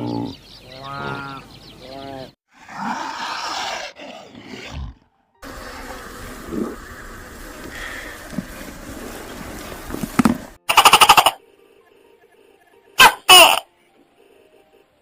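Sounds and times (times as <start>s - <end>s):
big cat growling and roaring: 2.0s - 8.0s
loud buzzy call: 10.7s - 11.4s, 13.0s - 13.7s.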